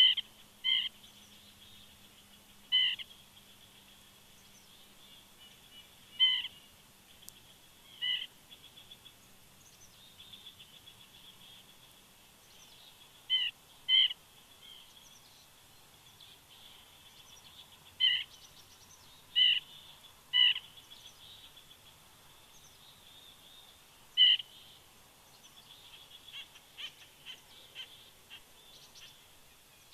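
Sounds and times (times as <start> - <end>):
woodpecker calling: 0.0 - 1.1, 2.3 - 3.9, 5.4 - 9.2, 13.2 - 14.9, 18.0 - 18.4, 19.3 - 21.6, 24.1 - 24.6, 25.8 - 29.2
birds chirping: 0.0 - 29.9.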